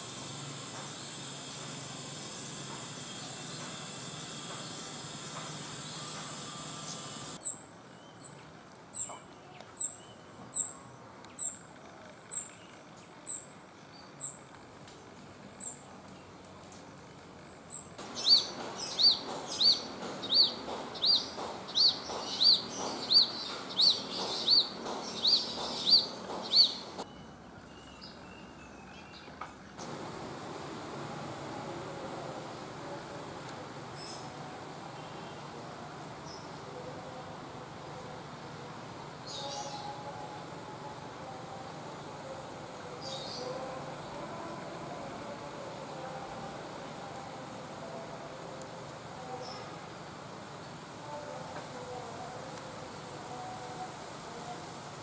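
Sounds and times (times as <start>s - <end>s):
insect buzz: 0.0s - 7.5s
bird chirping: 17.7s - 30.0s.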